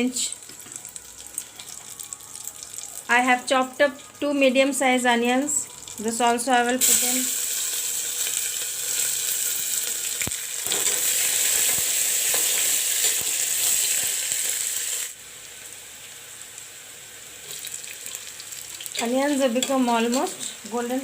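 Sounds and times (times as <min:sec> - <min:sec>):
onions sizzling in oil: 0:00.0 - 0:21.0.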